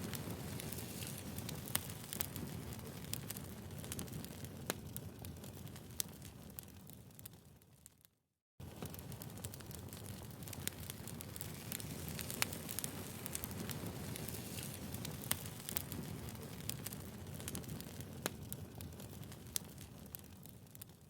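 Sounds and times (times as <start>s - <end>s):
low rumble of flames: 0.0s - 7.8s, 8.6s - 21.0s
wood fire crackling: 0.0s - 21.0s.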